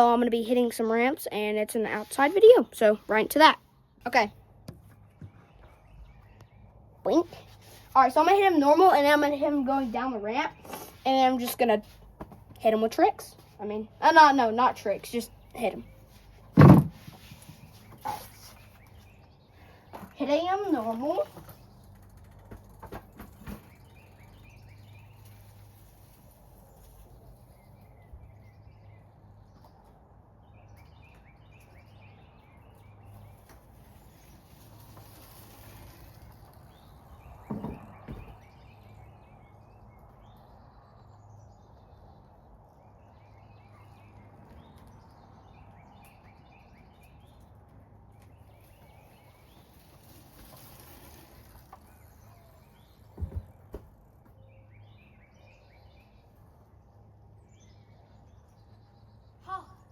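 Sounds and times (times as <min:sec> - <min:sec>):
small birds chirping: 0:00.0 - 0:59.9
short thump: 0:16.6 - 0:17.6.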